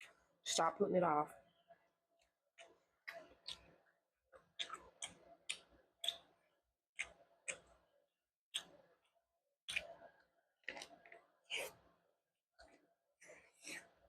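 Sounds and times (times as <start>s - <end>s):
chewing mouth clicks and smacks: 2.6s - 6.4s, 7.0s - 7.8s, 8.5s - 8.9s, 9.7s - 11.9s.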